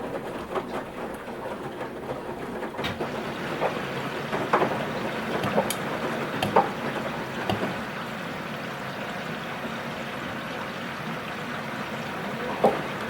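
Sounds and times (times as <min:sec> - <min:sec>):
water and laundry sloshing: 0:00.0 - 0:13.0
washing machine drum turning: 0:02.8 - 0:08.1
sharp splashes or knocks: 0:04.4 - 0:07.9.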